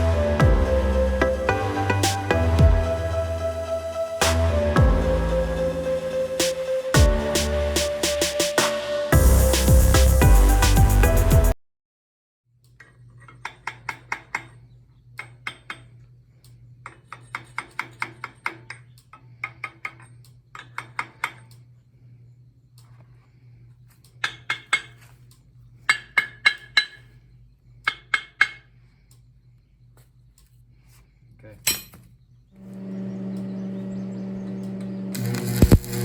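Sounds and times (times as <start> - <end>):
low electrical hum: 21.4 - 36.0
hammer tapping on steel: 27.9 - 28.7.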